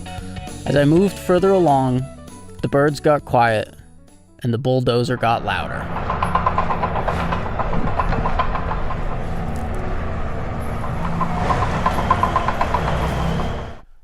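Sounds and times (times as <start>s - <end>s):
bulldozer diesel engine drone: 5.2s - 13.9s
rapid metallic ticking: 5.4s - 13.8s.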